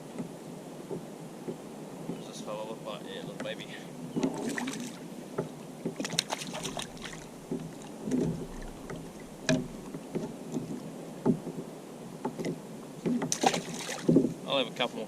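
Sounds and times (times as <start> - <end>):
water: 0.0 - 15.0
wind: 0.0 - 15.0
knocks against plastic kayak: 7.5 - 11.6.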